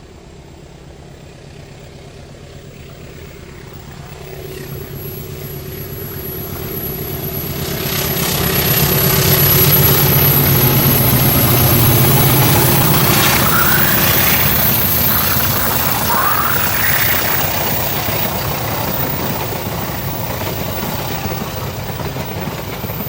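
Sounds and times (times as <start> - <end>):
diesel train engine rumble: 0.0 - 23.0
rising squeals: 4.3 - 22.0.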